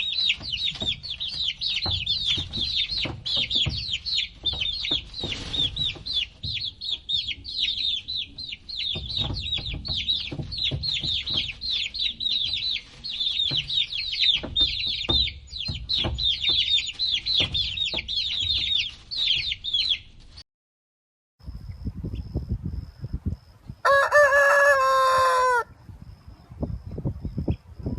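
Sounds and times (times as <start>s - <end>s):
chicks peeping: 0.0s - 20.4s.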